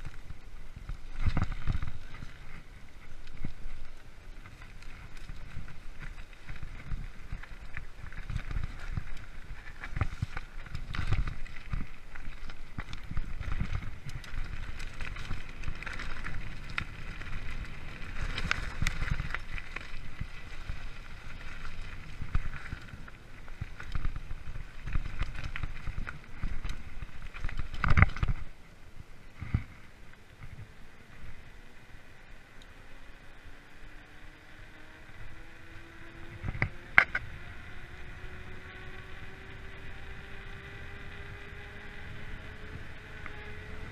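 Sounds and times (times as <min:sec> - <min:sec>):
tyres rumbling on dirt: 0:00.0 - 0:28.6
bike knocking and rattling: 0:00.0 - 0:28.7, 0:35.1 - 0:43.9.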